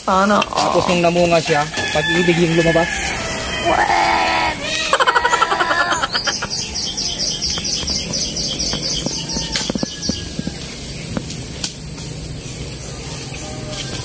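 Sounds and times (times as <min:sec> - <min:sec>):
rooster crowing: 0:00.8 - 0:07.2, 0:08.8 - 0:11.0
small bird chirping: 0:05.6 - 0:11.4.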